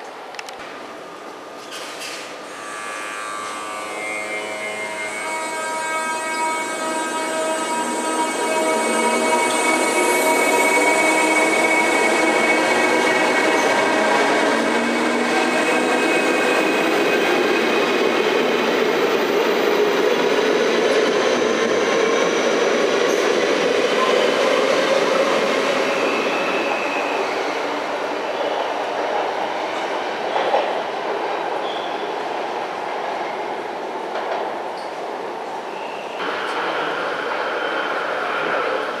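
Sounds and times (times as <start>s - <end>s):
electric train rolling: 1.8s - 29.4s.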